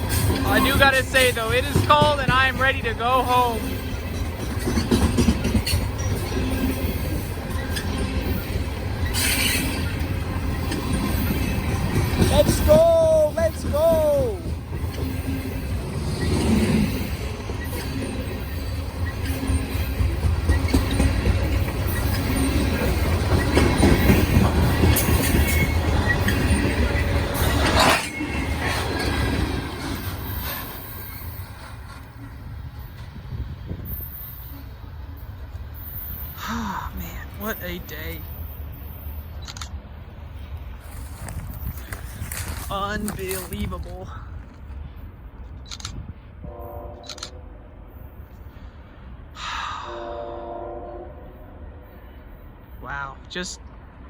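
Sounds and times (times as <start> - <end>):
wheels clicking over rail joints: 0.0 - 34.0
train cars rumbling past: 0.0 - 54.0
wheels knocking on rails: 0.2 - 3.6, 19.5 - 30.6.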